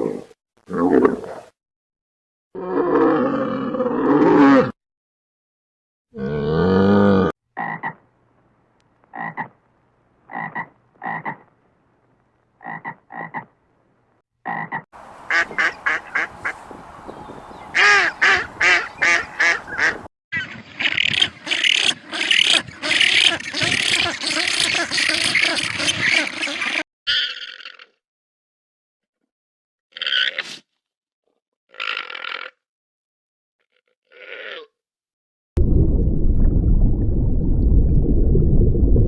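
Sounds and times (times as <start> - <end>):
frog croaking: 14.5 - 20.0.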